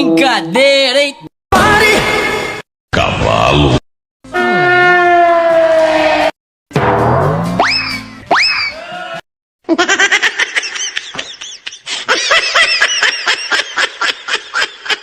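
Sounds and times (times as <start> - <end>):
high-pitched comedy laughter: 9.7 - 15.0.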